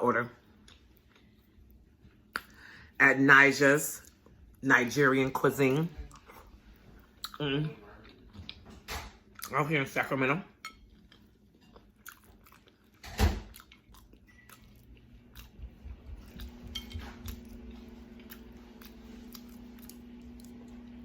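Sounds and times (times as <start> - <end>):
low steady hum: 0.0 - 21.0
person chewing food: 0.4 - 2.7, 6.0 - 9.5, 10.7 - 21.0.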